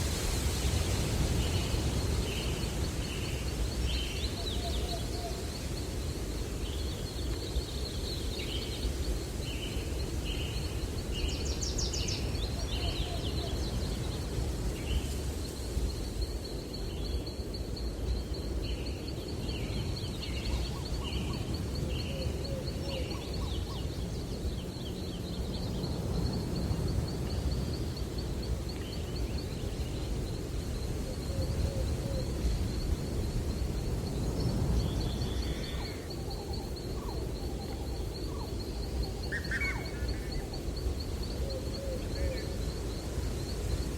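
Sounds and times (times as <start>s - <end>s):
wind through trees: 0.0s - 43.9s
lower bird calls: 34.3s - 43.1s.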